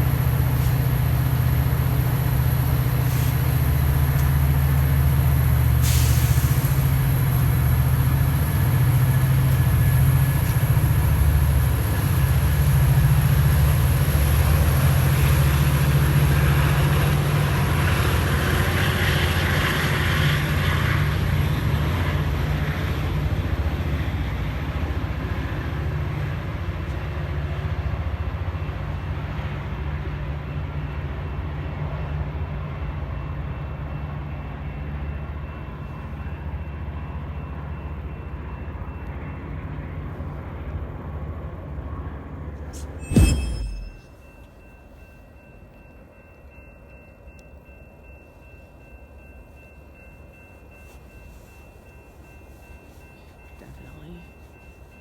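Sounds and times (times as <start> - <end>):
diesel locomotive rumbling: 0.0 - 55.0
hiss of air: 3.0 - 3.6, 5.8 - 6.9.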